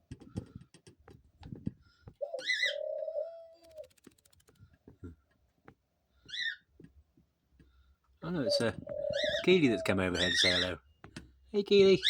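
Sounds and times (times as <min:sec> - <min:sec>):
dove cooing: 0:02.2 - 0:03.9, 0:08.3 - 0:10.6
rapid fine clicks: 0:03.6 - 0:04.8.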